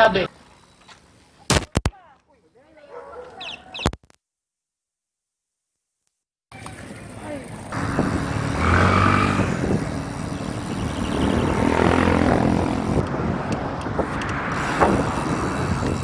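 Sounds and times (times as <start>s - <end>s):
road and wind noise: 6.5s - 16.0s
vehicle engine passing: 7.7s - 13.5s.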